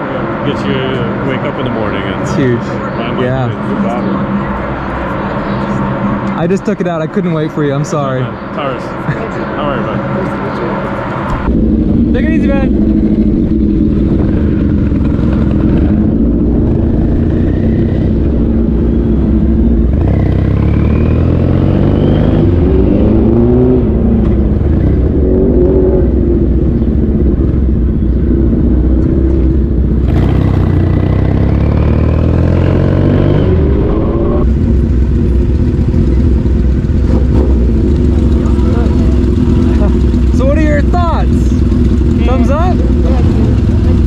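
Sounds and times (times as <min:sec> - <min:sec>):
wind and road rush: 0:00.0 - 0:44.0
motorcycle engine accelerating: 0:11.2 - 0:44.0.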